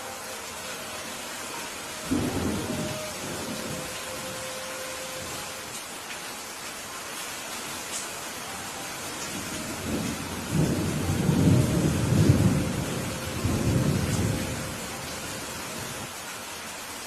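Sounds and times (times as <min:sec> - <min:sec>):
steady rain falling: 0:00.0 - 0:17.0
rolling thunder rumble: 0:02.0 - 0:04.1, 0:09.3 - 0:16.1.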